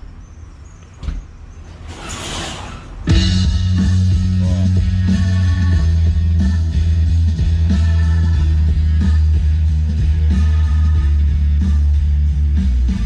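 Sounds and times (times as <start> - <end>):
loud rock song on car stereo: 3.1 - 13.0.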